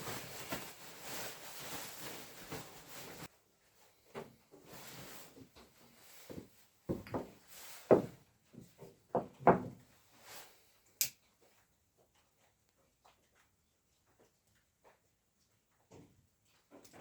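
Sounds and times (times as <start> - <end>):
rustling and scraping: 0.0 - 9.0
knocks and thuds: 9.1 - 9.8.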